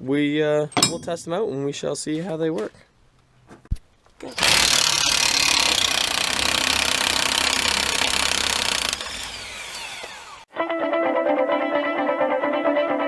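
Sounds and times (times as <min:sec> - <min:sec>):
power tool running: 0:04.2 - 0:10.5.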